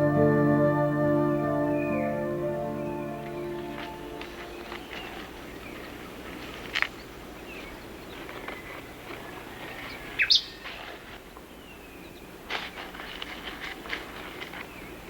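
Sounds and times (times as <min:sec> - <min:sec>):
steady low hiss: 0:00.0 - 0:15.0
bird calls and chirps: 0:02.8 - 0:12.8.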